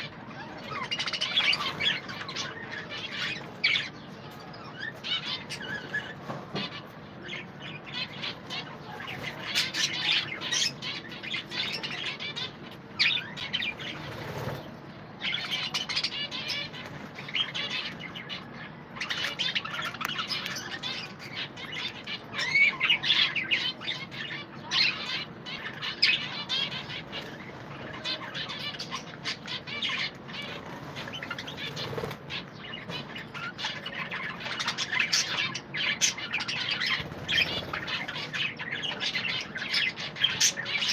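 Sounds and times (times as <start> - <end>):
budgerigars chirping and chattering: 0.0 - 40.9
wing flutters: 13.6 - 14.8, 30.4 - 32.4, 36.8 - 38.3.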